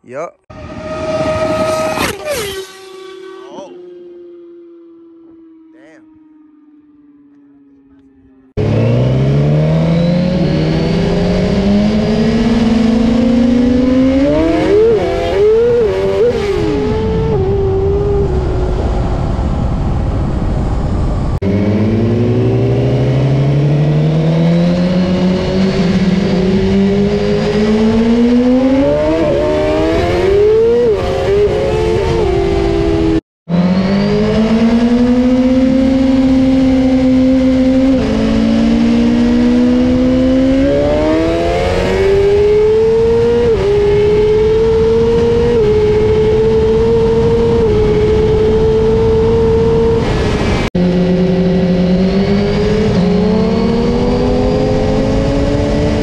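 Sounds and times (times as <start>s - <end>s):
motorcycle engine at full throttle: 0.5s - 56.0s
wind rush: 13.6s - 23.0s, 38.0s - 56.0s.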